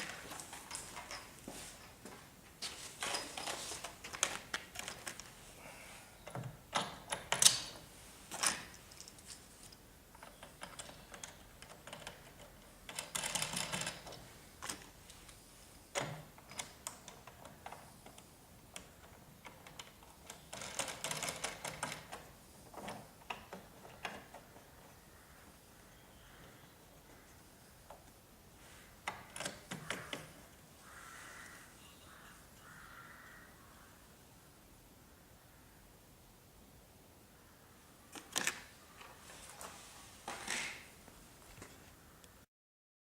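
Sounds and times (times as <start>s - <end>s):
bolts and washers rattling: 0.0s - 1.5s, 3.0s - 5.4s, 6.2s - 15.0s, 15.9s - 25.0s, 29.0s - 30.6s
small parts clicking and knocking: 3.0s - 5.4s, 6.2s - 15.3s, 15.9s - 25.0s, 29.0s - 30.4s, 38.1s - 39.2s.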